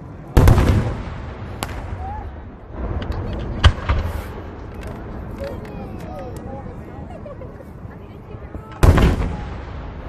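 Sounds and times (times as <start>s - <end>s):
fireworks booming: 0.3s - 5.2s, 8.8s - 10.0s
firework sharp crack: 0.4s - 4.8s, 8.8s - 10.0s.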